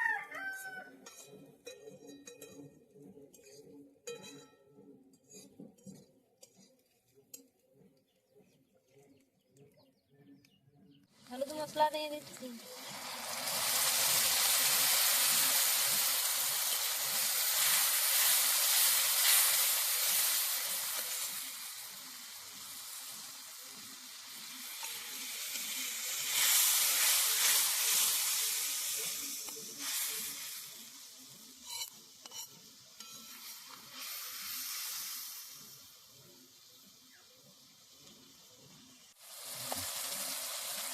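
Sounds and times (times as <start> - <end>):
spices sizzling in a hot pan: 11.3 - 40.9.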